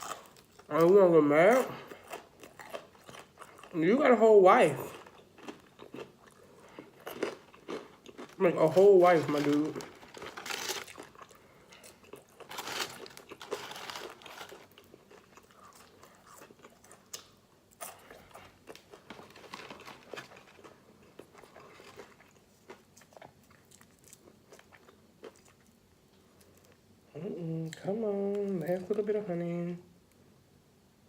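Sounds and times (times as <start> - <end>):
crunchy bites and chewing: 0.0 - 3.8, 4.8 - 25.8.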